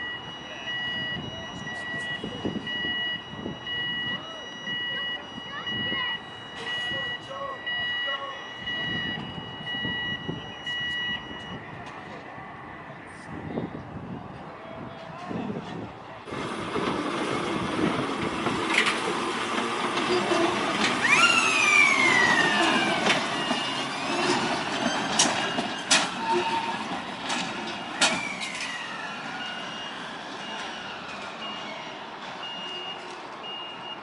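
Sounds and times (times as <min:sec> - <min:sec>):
faint high beeping: 0:00.0 - 0:11.7
railway car rumble: 0:00.0 - 0:34.0
wheel squeal: 0:20.0 - 0:26.9.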